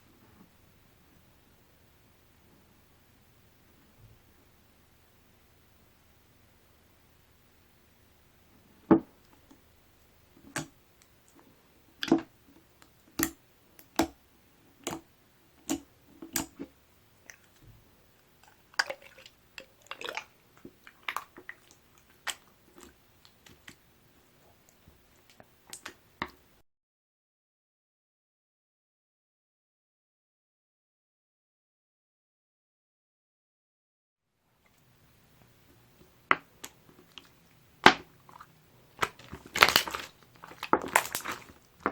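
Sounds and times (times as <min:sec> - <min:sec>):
slime squishing: 0:10.3 - 0:14.2, 0:14.8 - 0:23.9, 0:36.3 - 0:41.9.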